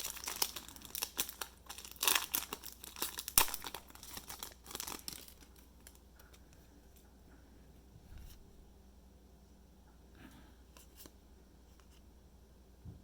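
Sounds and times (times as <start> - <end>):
wrapper torn and crinkled: 0.0 - 6.0.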